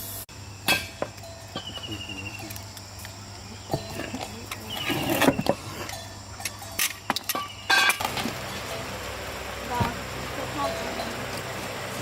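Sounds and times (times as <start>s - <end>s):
metal tools clattering: 3.6s - 8.9s.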